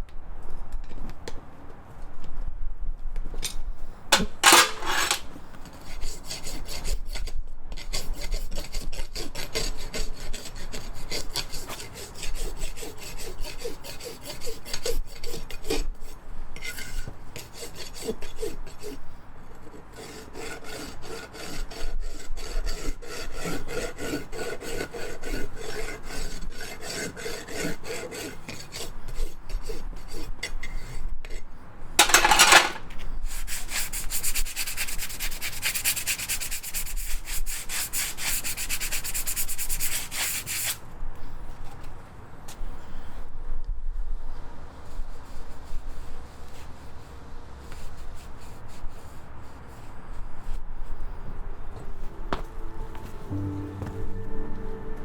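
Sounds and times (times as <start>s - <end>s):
rasp filing a hoof: 4.4s - 40.8s.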